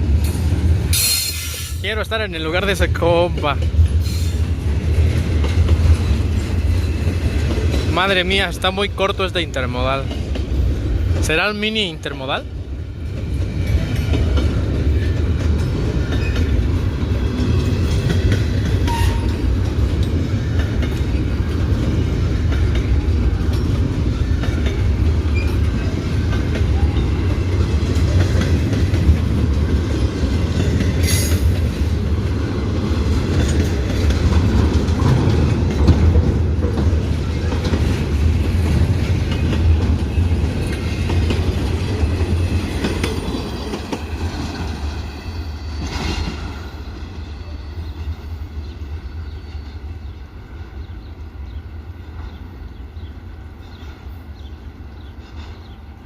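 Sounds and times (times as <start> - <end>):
freight train wheels rumbling: 0.0 - 56.0
clicks of wheels on rail: 2.8 - 9.4, 13.0 - 45.1, 53.7 - 56.0.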